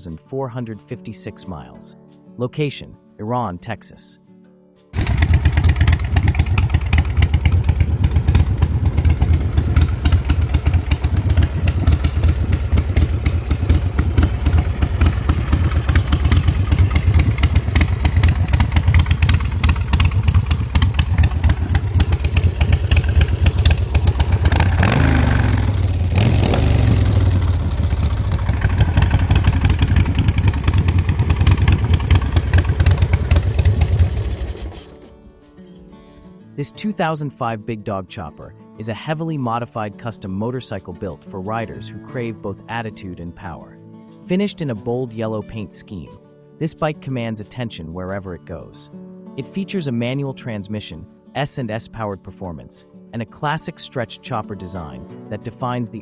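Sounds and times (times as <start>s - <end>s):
motorcycle engine running: 5.0s - 35.1s.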